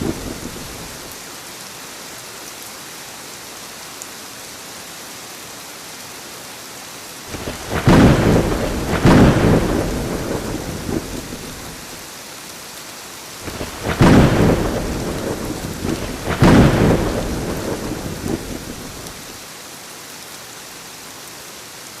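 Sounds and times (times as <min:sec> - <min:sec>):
thunder cracking and rumbling: 0:00.0 - 0:01.1, 0:07.3 - 0:12.0, 0:13.4 - 0:19.3
heavy rain: 0:00.0 - 0:22.0.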